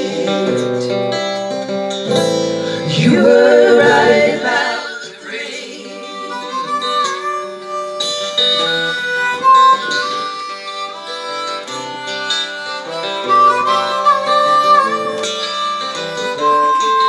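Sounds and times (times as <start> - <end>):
acoustic guitar accompaniment: 0.0 - 17.0
harmonica melody: 0.0 - 17.0.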